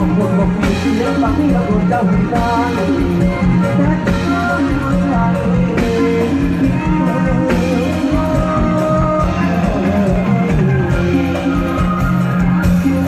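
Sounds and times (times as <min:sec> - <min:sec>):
bass line: 0:00.0 - 0:13.0
drum kit: 0:00.0 - 0:13.0
electric guitar melody: 0:00.0 - 0:13.0.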